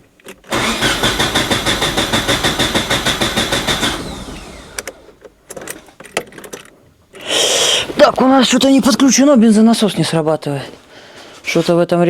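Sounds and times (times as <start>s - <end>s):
starter motor cranking engine: 0.4s - 6.0s
sharp clicks: 0.5s - 5.7s.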